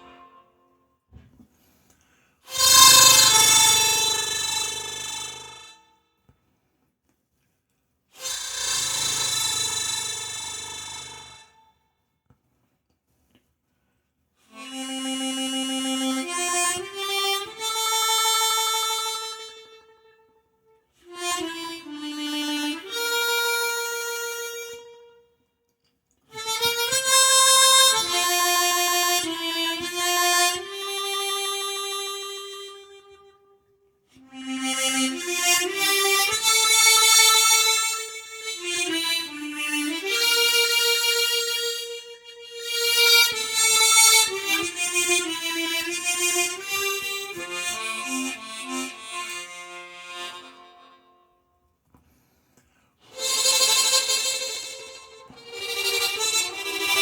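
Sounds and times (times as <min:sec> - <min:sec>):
harmonica playing slow melody: 0:00.0 - 0:00.7, 0:02.5 - 0:06.0, 0:08.2 - 0:11.8, 0:14.4 - 0:25.4, 0:26.3 - 0:51.5, 0:53.0 - 0:57.0.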